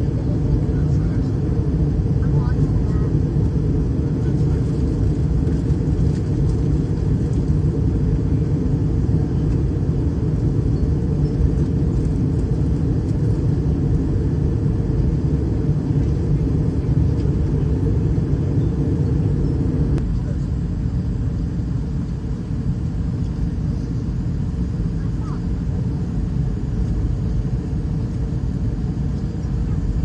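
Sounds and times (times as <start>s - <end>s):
airliner in flight rumble: 0.0s - 30.0s.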